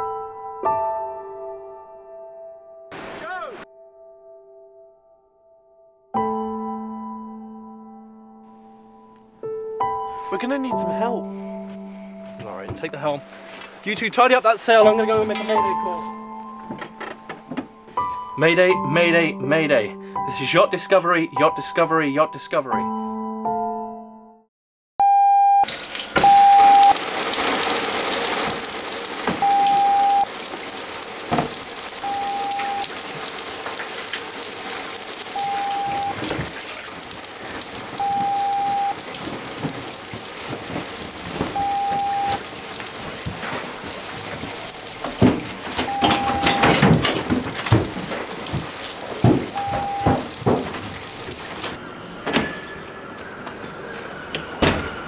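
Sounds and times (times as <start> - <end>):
shower water hissing: 2.9 - 3.5, 25.7 - 51.8
electronic alert beep: 25.0 - 27.0, 29.4 - 30.3, 32.0 - 32.8, 35.4 - 36.2, 38.0 - 39.0, 41.6 - 42.4, 45.9 - 46.8
sharp knocks: 31.3 - 31.7, 44.2 - 52.6
rustling: 32.9 - 51.8.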